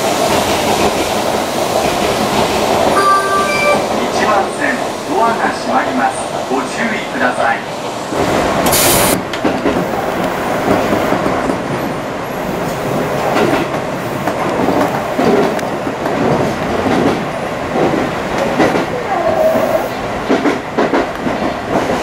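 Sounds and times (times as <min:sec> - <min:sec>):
train running noise: 0:00.0 - 0:22.0
short hiss: 0:08.7 - 0:09.2.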